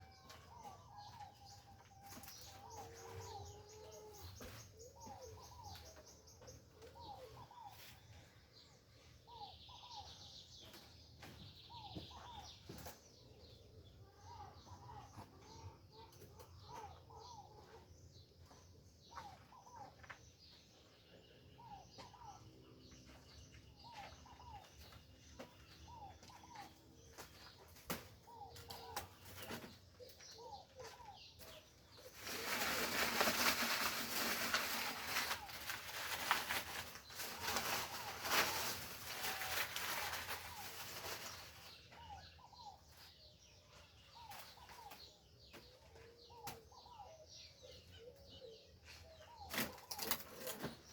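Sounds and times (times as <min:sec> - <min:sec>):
birds calling: 0:00.0 - 0:50.9.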